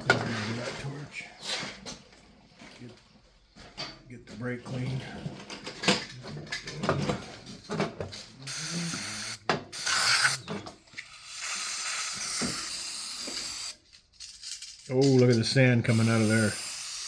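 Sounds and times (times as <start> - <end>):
aerosol spray hissing: 8.5 - 10.4, 11.1 - 13.8, 15.9 - 17.0
metal parts clicking and knocking: 13.8 - 15.7.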